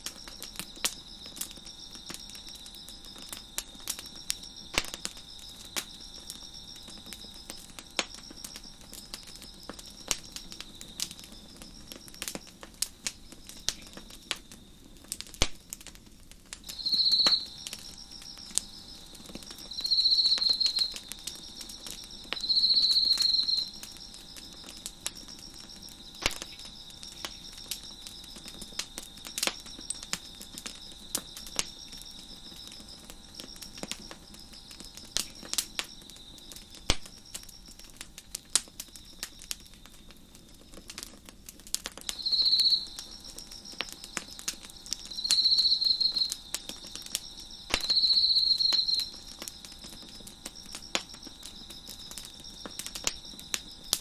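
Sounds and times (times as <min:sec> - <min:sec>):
crickets trilling: 0:00.0 - 0:54.0
wood fire crackling and popping: 0:00.0 - 0:54.0.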